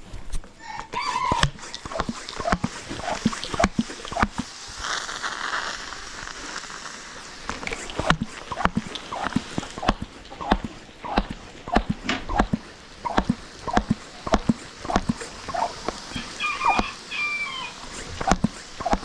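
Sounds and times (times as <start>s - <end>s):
rustling hiss: 0.0s - 19.0s
sharp knocks and clicks: 1.3s - 4.5s, 8.0s - 16.0s, 18.0s - 19.0s.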